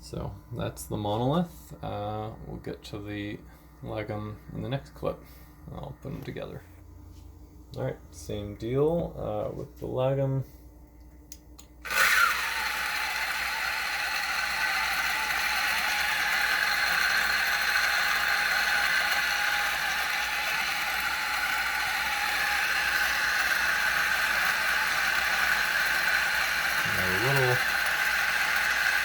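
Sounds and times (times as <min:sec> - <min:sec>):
coffee grinder grinding beans: 0:11.8 - 0:29.0.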